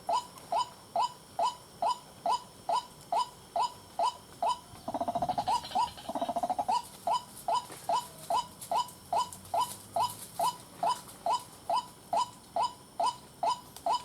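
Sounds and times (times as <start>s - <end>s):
waterhen calling: 4.8s - 6.8s.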